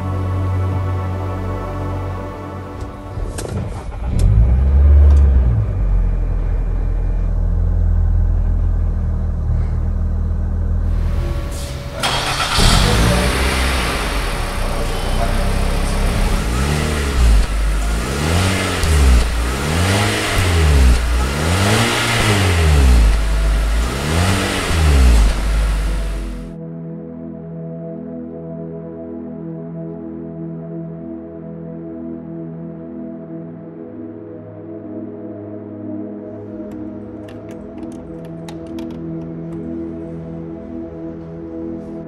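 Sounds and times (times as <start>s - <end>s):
car engine idling: 1.9s - 26.5s
engine revving in short blips: 11.3s - 26.5s.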